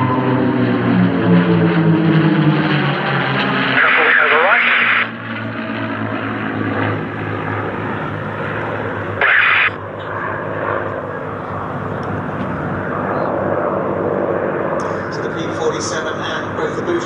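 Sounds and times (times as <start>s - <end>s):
propeller aircraft engine: 0.0s - 17.0s
radio burst: 3.8s - 5.1s, 9.2s - 9.8s.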